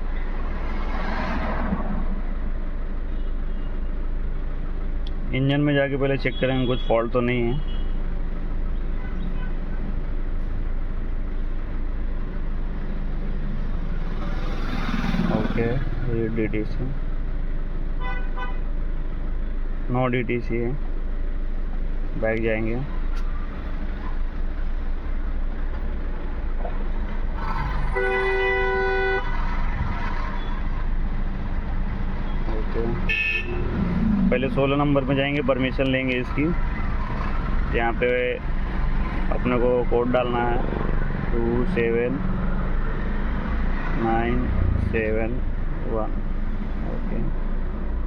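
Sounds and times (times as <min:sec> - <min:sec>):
vehicle horn: 0:18.0 - 0:18.8, 0:27.9 - 0:29.5, 0:33.1 - 0:33.8.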